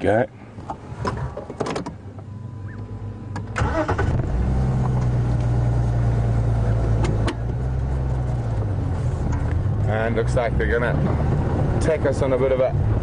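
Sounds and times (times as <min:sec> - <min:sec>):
vehicle engine running: 0:03.8 - 0:13.0.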